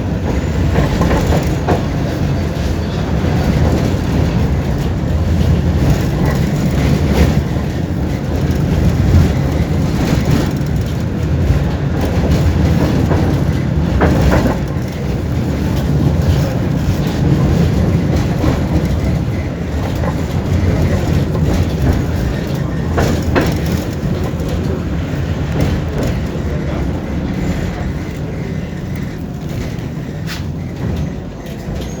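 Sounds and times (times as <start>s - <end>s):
tram wheels rumbling on rail: 0.0s - 32.0s
sharp clicks and knocks: 5.4s - 28.3s.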